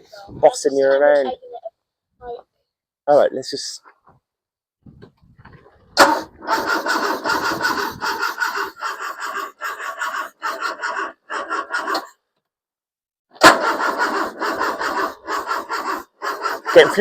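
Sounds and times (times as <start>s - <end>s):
engine cranking on starter motor: 6.0s - 12.2s, 13.4s - 17.0s.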